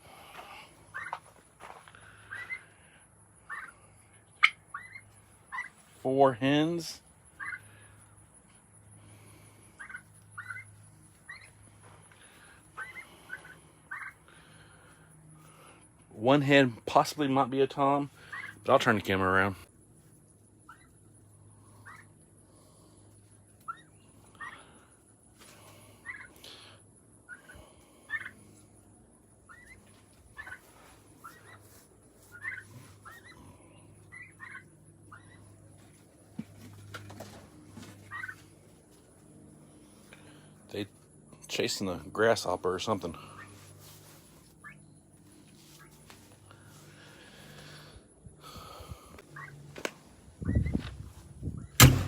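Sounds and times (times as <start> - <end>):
turkeys calling: 0.2 - 15.8, 18.0 - 40.5, 41.8 - 47.9, 48.5 - 49.6.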